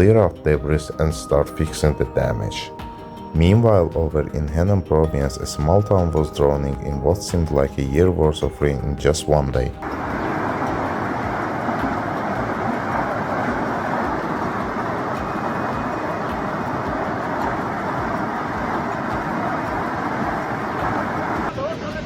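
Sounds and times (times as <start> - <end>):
floodwater rushing: 9.8 - 22.0.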